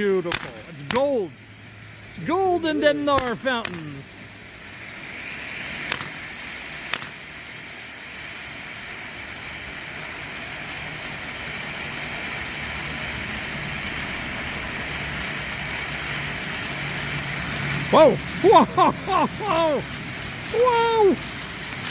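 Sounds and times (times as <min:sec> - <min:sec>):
sharp cracks: 0:00.0 - 0:07.8, 0:12.9 - 0:21.9
firework fountain hissing: 0:00.0 - 0:21.9.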